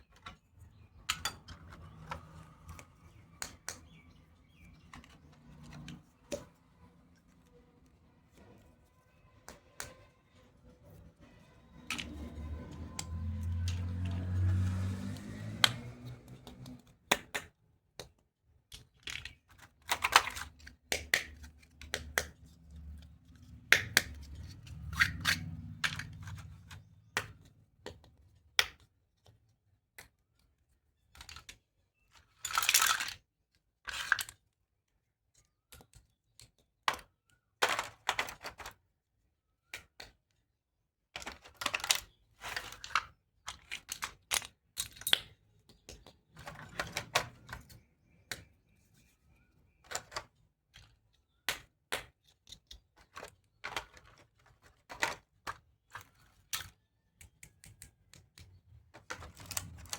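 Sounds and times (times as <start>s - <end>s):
plastic toy pieces clicking: 15.5s - 22.5s, 23.5s - 29.4s, 30.0s - 34.6s, 41.1s - 48.5s, 49.8s - 59.9s.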